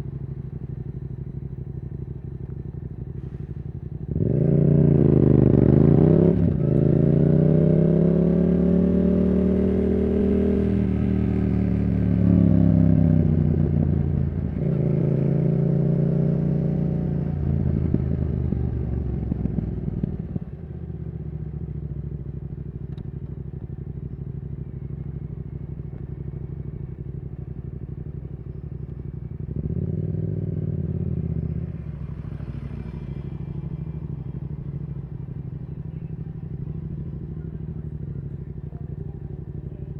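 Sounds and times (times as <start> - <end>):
motorcycle engine revving through gears: 4.0 - 21.0, 28.2 - 38.6.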